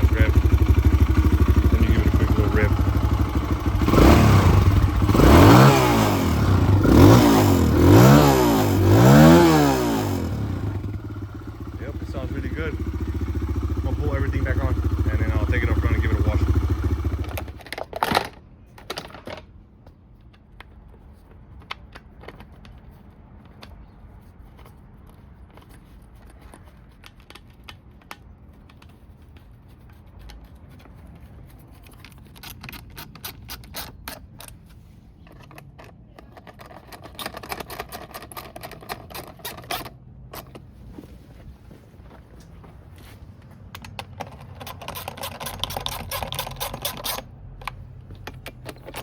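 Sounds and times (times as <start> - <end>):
plastic parts clicking and clattering: 17.2 - 40.8, 42.1 - 49.0.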